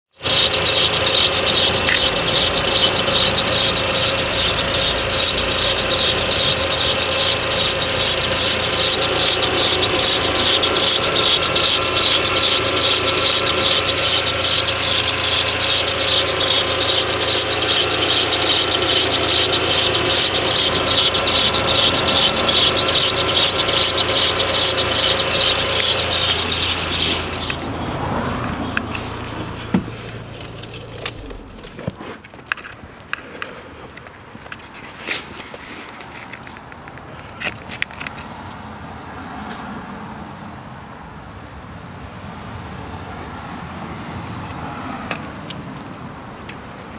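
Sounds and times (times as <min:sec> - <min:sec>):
chirping belt squeal: 0:00.1 - 0:31.8
car engine running: 0:00.1 - 0:32.6.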